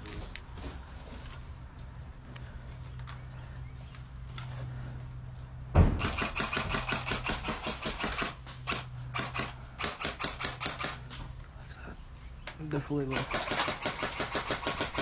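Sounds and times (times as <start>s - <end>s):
loud thump: 5.7s - 6.2s
airsoft gun firing bursts: 6.0s - 11.0s, 13.0s - 15.0s.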